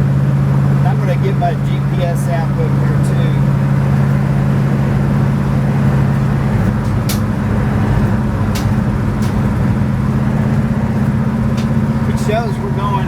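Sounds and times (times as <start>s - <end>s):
engine drone inside car: 0.0s - 13.0s
tyre and road noise: 0.0s - 13.0s
light clicks: 8.5s - 9.6s.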